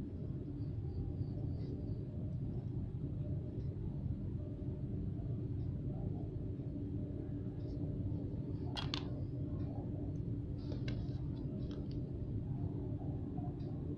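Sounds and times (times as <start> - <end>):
low background hum: 0.0 - 13.9
small clicks and taps: 8.7 - 9.2, 10.7 - 12.0.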